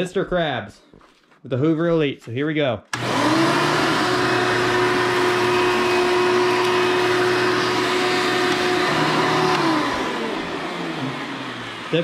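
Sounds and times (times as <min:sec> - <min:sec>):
vacuum cleaner motor whine: 0:02.9 - 0:12.0.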